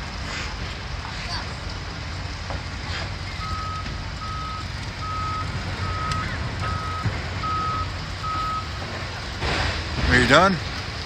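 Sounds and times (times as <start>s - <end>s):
diesel machinery rumble: 0.0s - 11.0s
back-up alarm beeps: 3.4s - 8.8s.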